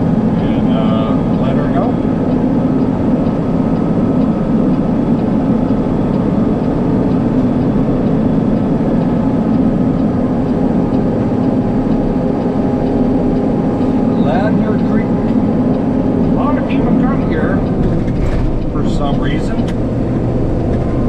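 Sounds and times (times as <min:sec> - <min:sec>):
road noise: 0:00.0 - 0:21.0
truck diesel engine: 0:00.0 - 0:21.0.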